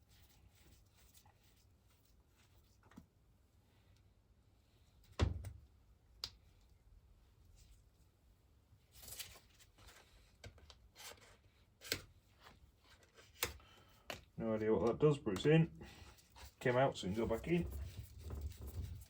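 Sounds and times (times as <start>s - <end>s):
rustling: 8.8s - 10.3s, 15.8s - 19.0s.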